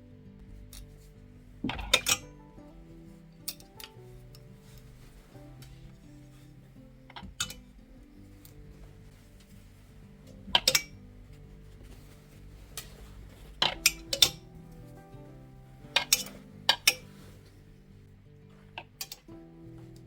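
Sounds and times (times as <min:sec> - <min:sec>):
soft background music: 0:00.0 - 0:20.0
dishes and cutlery clinking: 0:00.7 - 0:02.6, 0:03.4 - 0:11.1, 0:11.8 - 0:15.0, 0:15.8 - 0:17.5.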